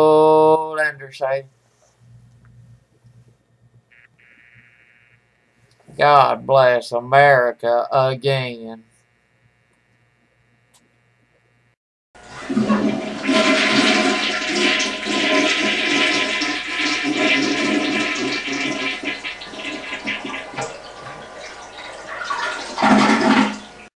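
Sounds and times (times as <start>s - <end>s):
toilet flushing: 12.2s - 23.9s.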